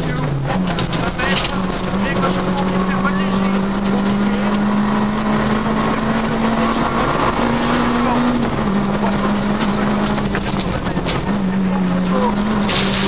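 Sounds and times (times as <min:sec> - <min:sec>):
rally car engine revving high: 0:00.0 - 0:13.0.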